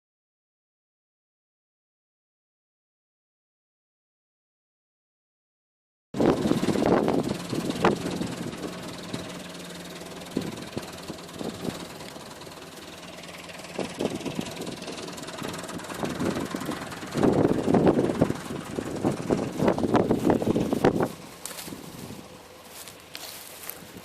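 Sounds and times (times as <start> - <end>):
tractor diesel engine running: 6.2 - 24.0.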